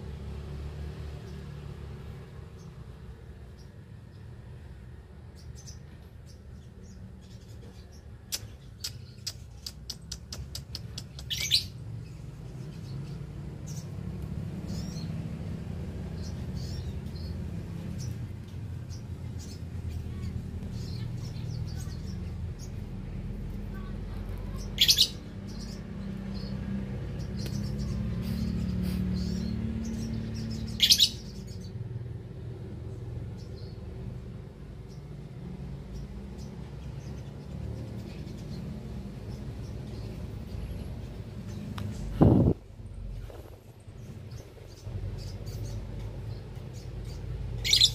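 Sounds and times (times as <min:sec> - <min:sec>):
lovebirds chirping: 0:01.0 - 0:47.9
quick sharp clicks: 0:08.3 - 0:11.4.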